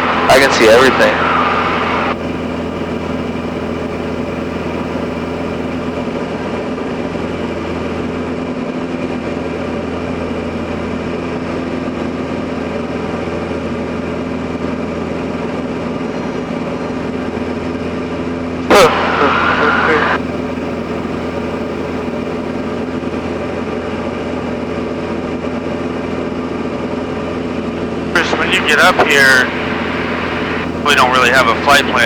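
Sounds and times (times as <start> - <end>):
light aircraft engine droning: 0.0 - 7.2, 18.7 - 23.8, 28.2 - 32.0.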